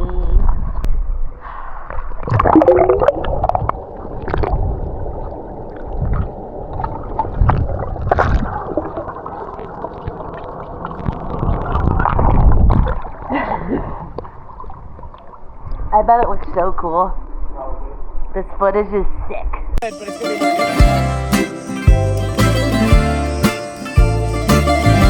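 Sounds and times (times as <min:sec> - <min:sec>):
underwater crackles: 0:01.9 - 0:15.8
underwater gurgling and bubbling: 0:02.2 - 0:15.2.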